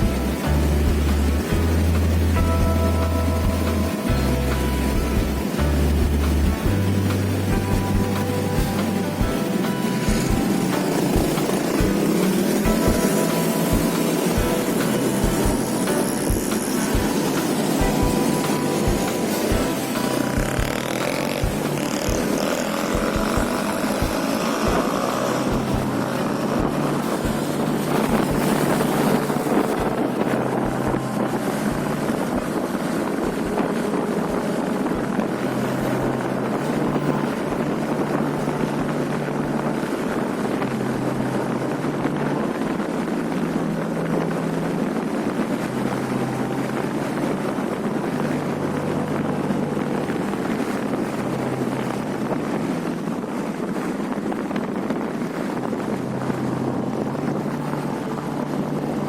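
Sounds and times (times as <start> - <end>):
motorcycle engine running: 0.0 - 40.0
wind rushing over microphone: 0.0 - 59.0.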